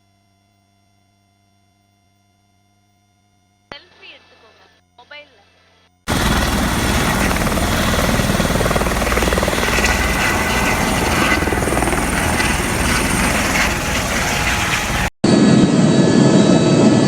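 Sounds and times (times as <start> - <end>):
helicopter engine and rotor drone: 6.1 - 17.0.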